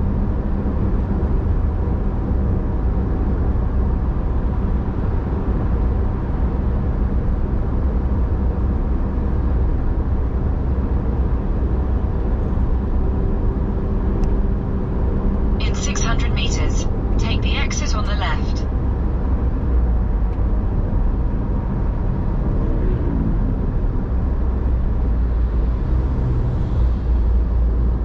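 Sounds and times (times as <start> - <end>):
car engine and road noise: 18.7 - 28.0.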